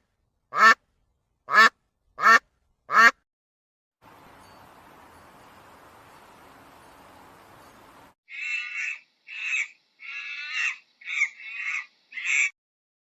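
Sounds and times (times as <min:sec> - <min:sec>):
bird giving harsh calls: 0:08.3 - 0:12.5.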